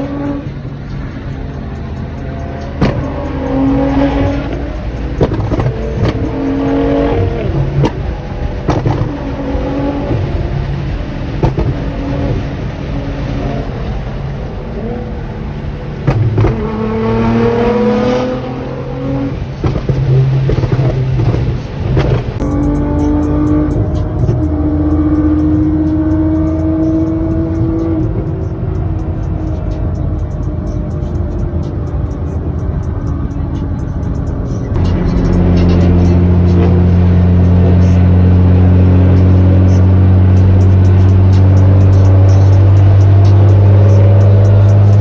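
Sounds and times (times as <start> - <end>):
sports car engine accelerating: 0.0 - 45.0
exhaust pops and cracks: 0.1 - 14.0, 15.8 - 18.2, 19.2 - 22.5.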